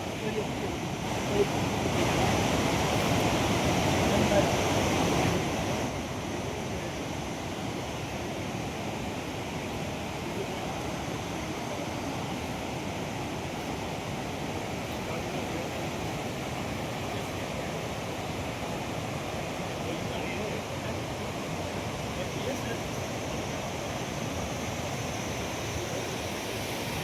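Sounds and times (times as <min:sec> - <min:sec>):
fast-flowing river water: 0:00.0 - 0:27.0.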